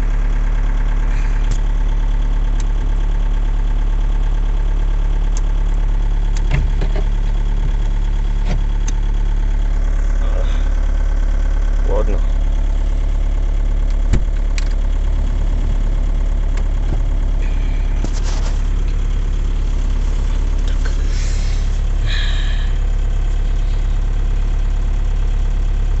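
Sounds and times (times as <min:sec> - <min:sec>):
diesel engine idling: 0:00.0 - 0:26.0
engine knock: 0:00.0 - 0:26.0.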